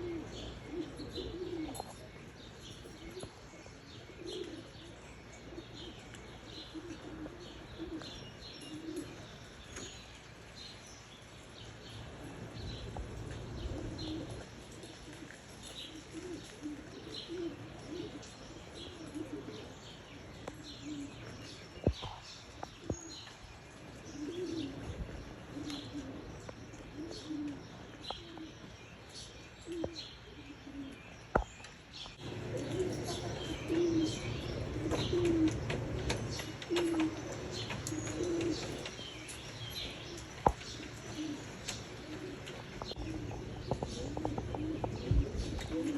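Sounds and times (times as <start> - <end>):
pigeons cooing: 0.0 - 10.6, 11.4 - 45.9.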